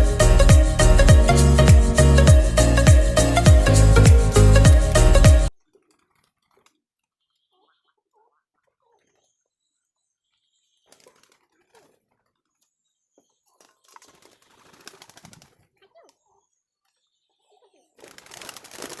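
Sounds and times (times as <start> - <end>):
pigeon scuffling and fluttering: 13.9 - 15.6, 18.0 - 19.0.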